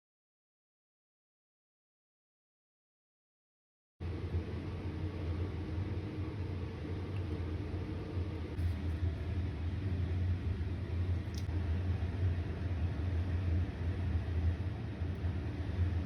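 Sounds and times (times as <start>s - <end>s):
low machine hum: 4.0s - 16.0s.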